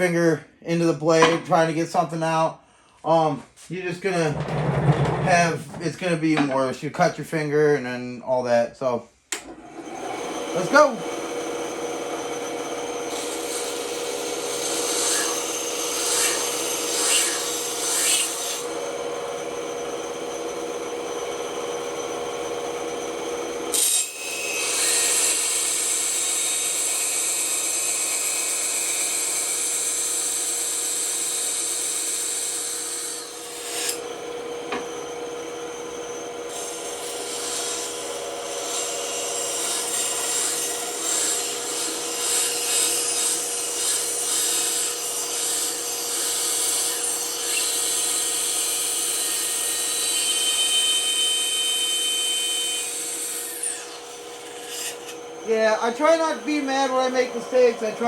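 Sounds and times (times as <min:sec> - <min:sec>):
bandsaw humming: 0:03.1 - 0:08.4, 0:09.3 - 0:58.0
saw blade rasping through wood: 0:13.0 - 0:18.8, 0:23.7 - 0:34.1, 0:36.0 - 0:58.0.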